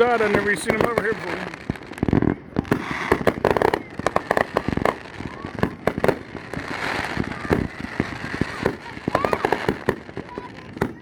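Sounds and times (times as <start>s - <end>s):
crackling hiss of fireworks: 0.0s - 11.0s
fireworks bangs and pops: 0.0s - 11.0s.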